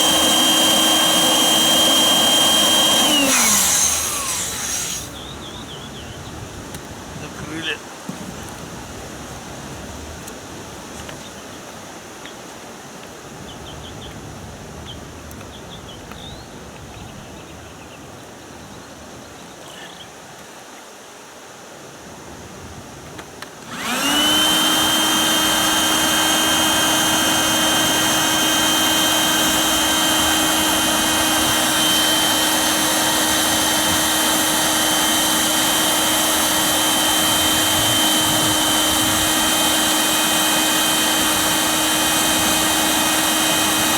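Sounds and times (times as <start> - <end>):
electric air pump whining: 0.0 - 5.5, 23.6 - 43.9.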